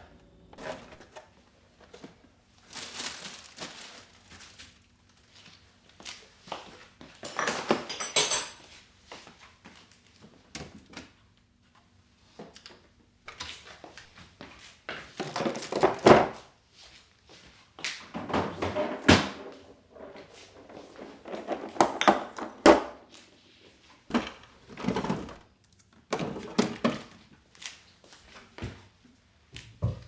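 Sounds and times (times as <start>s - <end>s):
kitchen items thunking and knocking: 7.3s - 8.6s, 15.2s - 16.4s, 18.1s - 23.1s, 24.1s - 25.4s, 26.1s - 27.2s, 29.6s - 30.0s
clattering scrapes: 18.2s - 22.9s.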